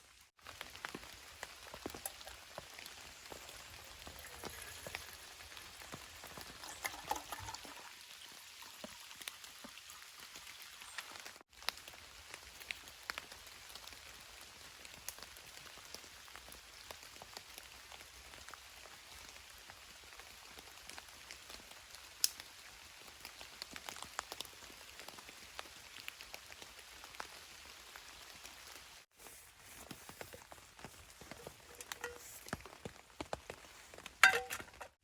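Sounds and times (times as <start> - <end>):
rain falling: 0.0 - 8.0, 8.6 - 34.9
raindrops tapping close by: 0.1 - 7.8, 29.9 - 35.0.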